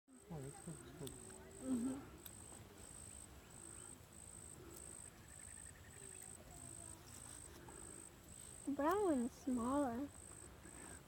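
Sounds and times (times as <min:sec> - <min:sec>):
insects chirping: 0:00.1 - 0:11.0.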